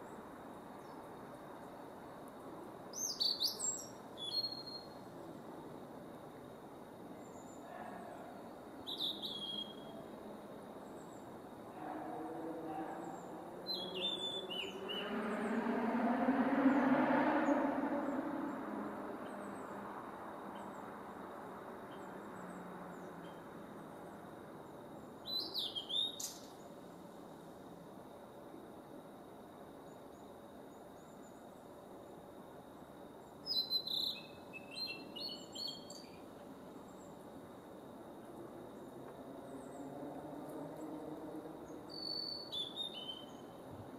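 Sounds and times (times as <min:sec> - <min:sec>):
bird whistling song: 0:03.0 - 0:04.9, 0:08.9 - 0:09.9, 0:13.7 - 0:15.0, 0:33.5 - 0:36.1, 0:41.9 - 0:43.4.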